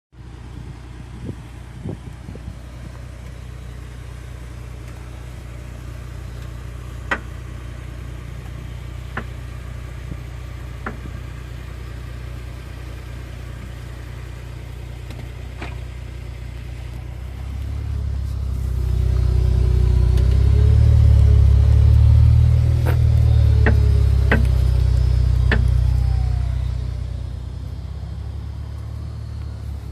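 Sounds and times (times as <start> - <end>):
car engine running low: 0.2 - 29.9
sharp knocks from car: 23.6 - 24.5.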